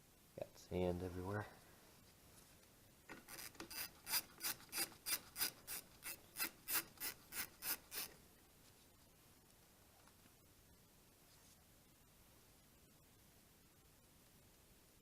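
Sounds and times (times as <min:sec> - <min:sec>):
hand tool rasping strokes: 0:03.2 - 0:08.2.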